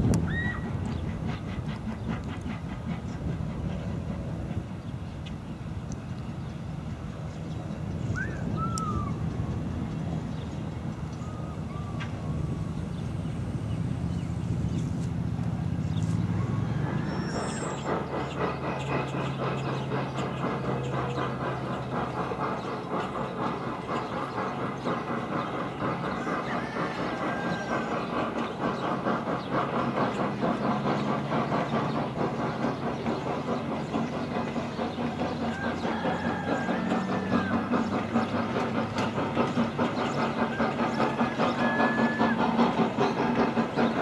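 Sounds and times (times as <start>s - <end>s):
wheels clicking over rail joints: 0.0s - 44.0s.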